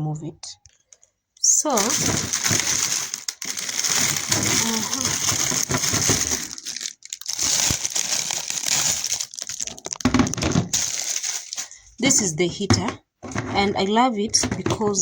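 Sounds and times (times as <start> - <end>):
packaging crinkling and rustling: 0.7 - 11.8.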